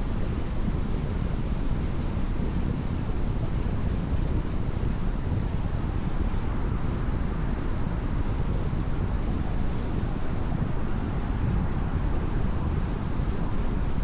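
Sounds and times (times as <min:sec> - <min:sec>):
tyre and wind noise on wet road: 0:05.9 - 0:14.0.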